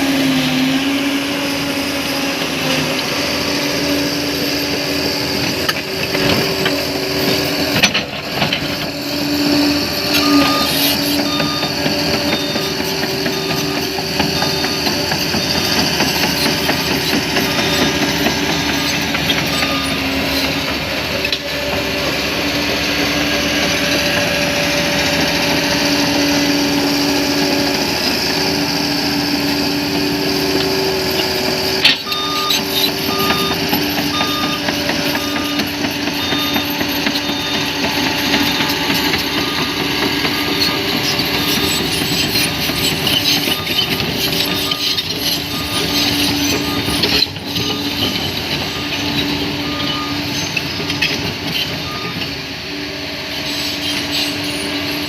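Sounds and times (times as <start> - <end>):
bulldozer diesel engine: 0.0 - 55.0
reversing alarm beeping: 4.0 - 21.8, 31.4 - 52.4.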